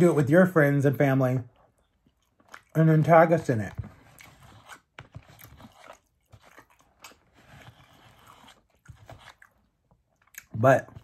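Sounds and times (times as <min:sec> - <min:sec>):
person chewing: 0:01.5 - 0:11.0.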